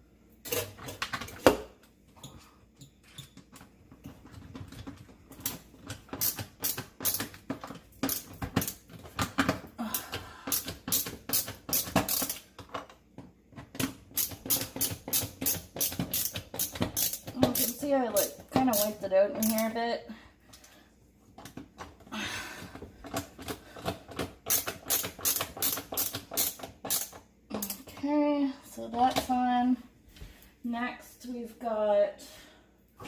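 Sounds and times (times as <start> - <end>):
screwdriver clicking and scraping: 4.4 - 9.6, 10.5 - 12.9, 13.7 - 19.7, 23.1 - 27.8.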